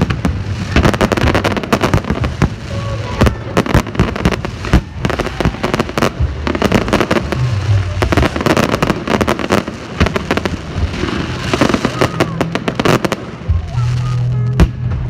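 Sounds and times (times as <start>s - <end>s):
fireworks bangs and crackles: 0.0s - 15.0s
low rumble: 0.0s - 15.0s.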